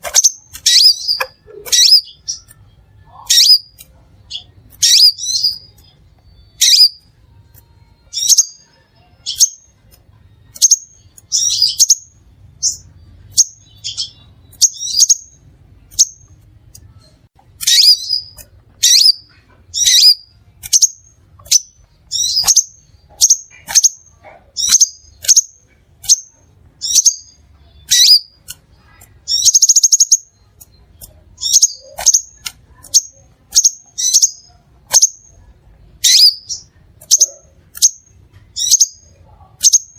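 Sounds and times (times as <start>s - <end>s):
bird buzzy trill: 0.0s - 9.7s, 29.2s - 39.9s
bird chirping: 0.0s - 39.9s.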